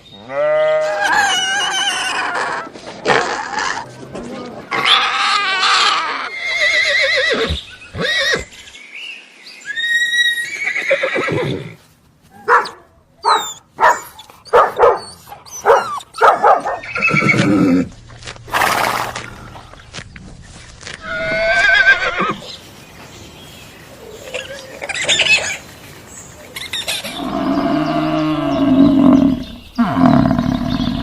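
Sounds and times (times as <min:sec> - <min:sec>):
horse whinnying: 0:04.8 - 0:08.5, 0:09.7 - 0:11.8, 0:16.8 - 0:17.9, 0:21.0 - 0:22.4.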